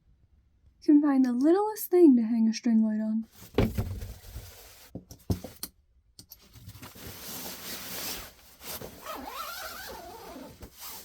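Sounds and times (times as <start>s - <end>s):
zipper rasping: 8.8s - 11.0s.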